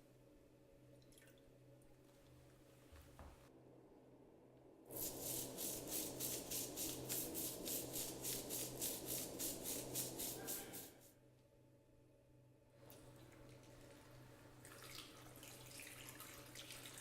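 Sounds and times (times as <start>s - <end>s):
brush scrubbing mesh filter: 4.9s - 11.0s.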